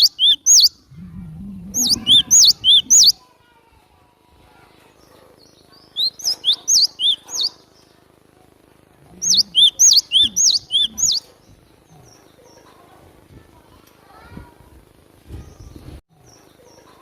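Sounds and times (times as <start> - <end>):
bird singing sharp high notes: 0.0 - 0.8, 1.7 - 3.2, 6.0 - 7.6, 9.2 - 11.3.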